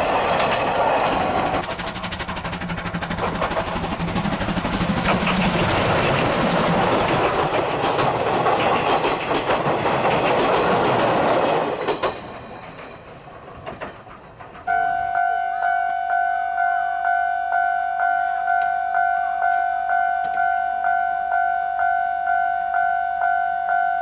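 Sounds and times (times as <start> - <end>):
steam train passing: 0.0 - 24.0
two-note electronic chime: 14.7 - 24.0.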